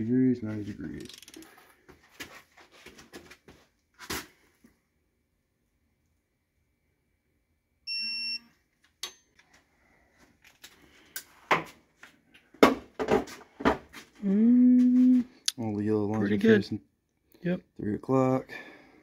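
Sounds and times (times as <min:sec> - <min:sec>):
electronic beep: 0:07.9 - 0:08.4.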